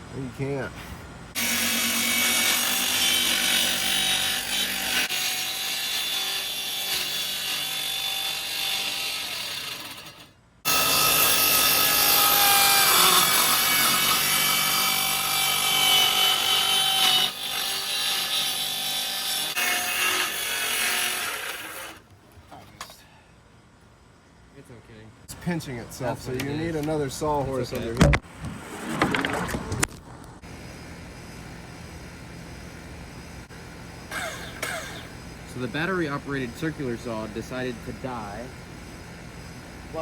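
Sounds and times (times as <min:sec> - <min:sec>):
circular saw cutting wood: 0:01.3 - 0:22.1.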